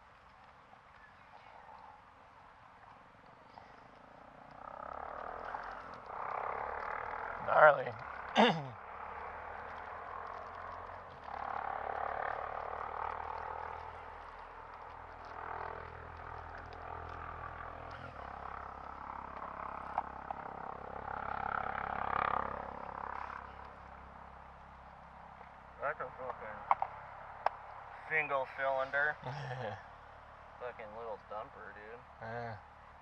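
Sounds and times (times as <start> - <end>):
frogs calling in chorus: 4.5 - 14.1.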